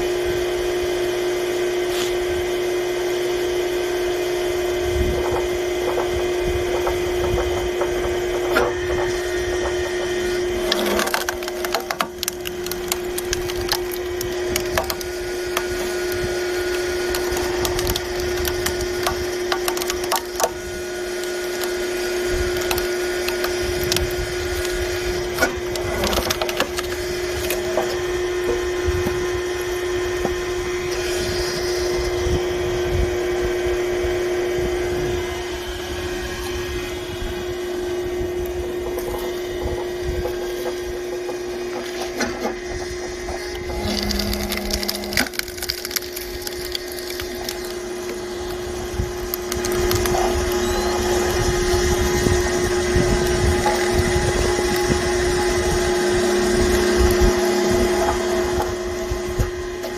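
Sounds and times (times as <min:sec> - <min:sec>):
log splitter humming: 0:00.0 - 0:59.9
wood creaking and cracking: 0:06.8 - 0:20.6, 0:21.2 - 0:28.0, 0:42.9 - 0:54.9.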